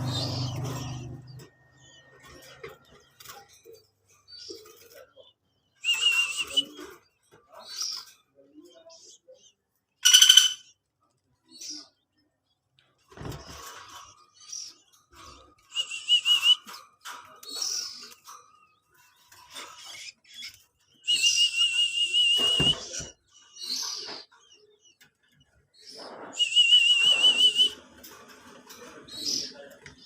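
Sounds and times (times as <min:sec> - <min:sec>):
loud trilling whistles: 0:26.4 - 0:27.8.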